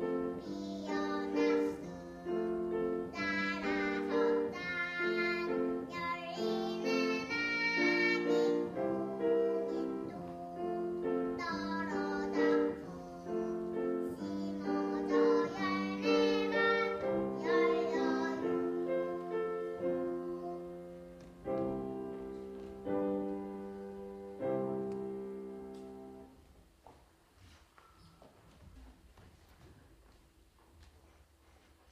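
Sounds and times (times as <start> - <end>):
child singing: 0.0 - 21.1
piano accompaniment: 0.0 - 28.2.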